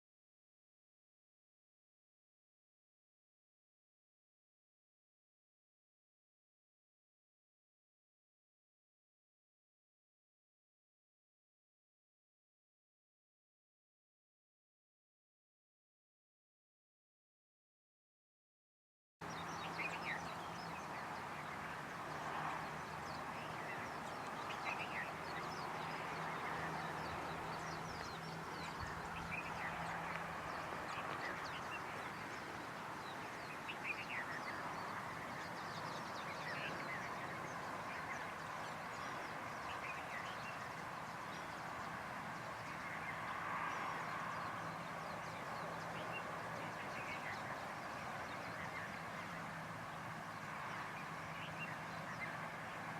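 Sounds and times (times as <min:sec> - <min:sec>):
background bird chorus: 0:19.2 - 0:52.9
birds chirping: 0:19.2 - 0:52.9.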